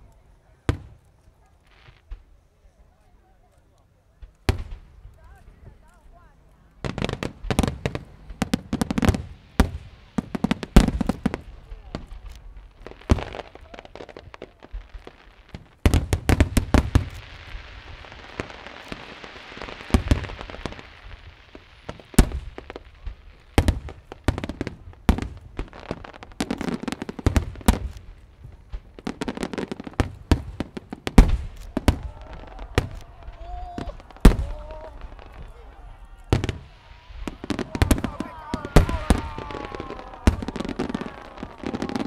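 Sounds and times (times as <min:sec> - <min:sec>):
fireworks hissing crackle: 0:00.8 - 0:03.0, 0:06.8 - 0:42.0
fireworks bursting bangs: 0:04.2 - 0:05.8, 0:06.8 - 0:42.0.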